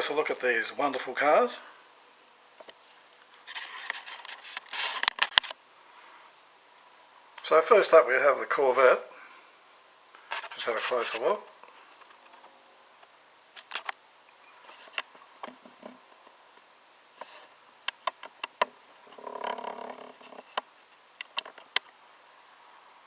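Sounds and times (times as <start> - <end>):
brief rubbing sound: 2.8 - 5.1
small clicks and taps: 14.9 - 18.7, 20.3 - 21.9.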